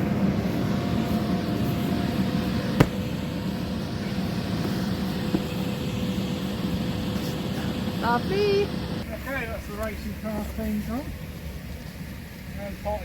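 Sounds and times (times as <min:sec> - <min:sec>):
electric blower fan humming: 0:00.0 - 0:09.1.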